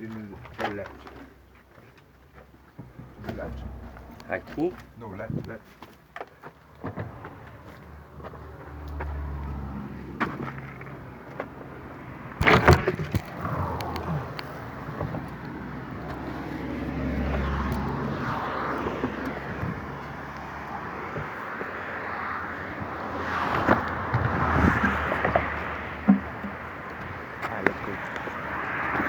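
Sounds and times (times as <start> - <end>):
traffic rumbling over bridge: 0.0 - 29.0
cluster of knocks: 12.4 - 13.5, 23.6 - 27.8.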